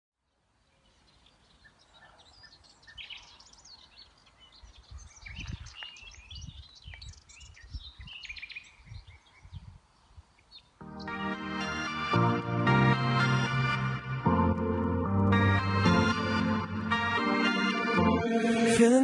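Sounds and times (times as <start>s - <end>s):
songbirds chirping and singing: 0.6s - 11.4s.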